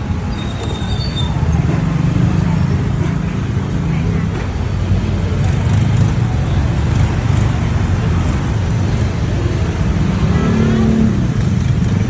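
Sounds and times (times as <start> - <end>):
motorcycle engine and road noise: 0.0 - 12.0.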